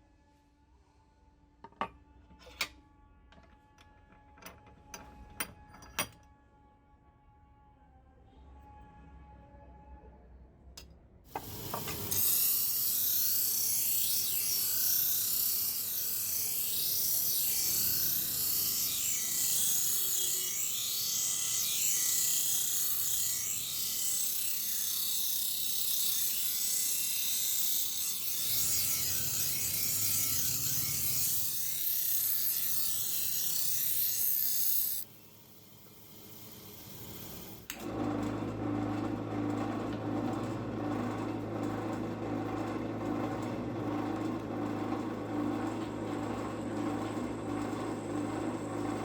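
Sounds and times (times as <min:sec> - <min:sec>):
power grinder grinding iron: 0:11.3 - 0:49.0.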